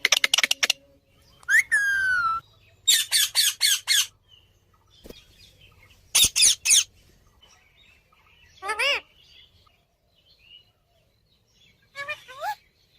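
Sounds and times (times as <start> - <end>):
parrot chirping and squawking: 1.6 - 4.1, 6.1 - 6.9, 8.6 - 9.1, 11.9 - 12.6.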